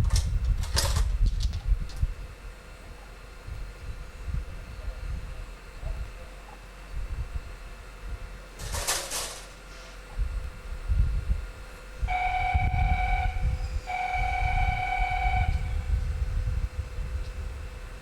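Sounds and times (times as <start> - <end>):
low rumble: 10.2 - 18.0
locomotive horn: 12.1 - 16.1.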